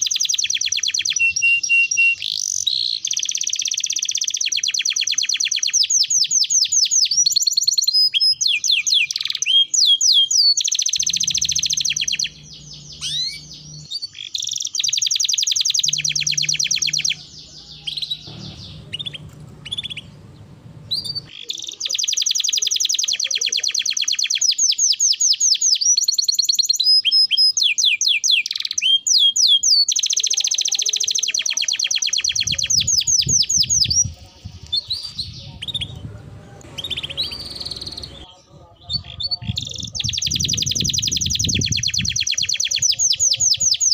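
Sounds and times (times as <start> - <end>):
canary singing fast trills: 0.0 - 43.9
faint low hum: 11.0 - 13.9, 15.8 - 21.3, 33.9 - 38.3.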